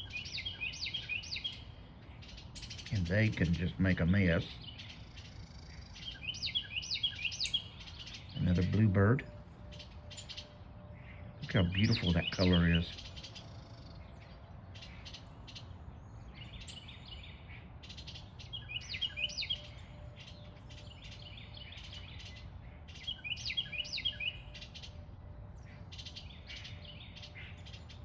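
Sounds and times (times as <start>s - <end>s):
songbird whistled song: 0.0s - 3.6s, 4.5s - 28.0s
birds scratchy chattering: 0.0s - 10.5s, 11.4s - 13.4s.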